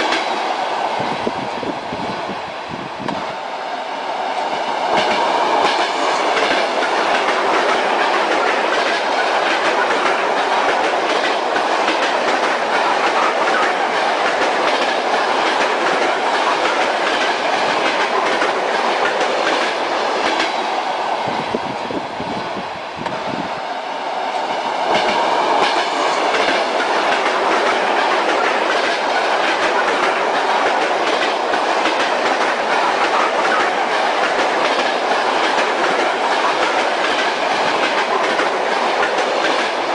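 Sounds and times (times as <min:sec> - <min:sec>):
rolling rumble of train: 0:00.0 - 0:39.9
train wheels clattering over joints: 0:04.9 - 0:20.6, 0:24.9 - 0:39.9.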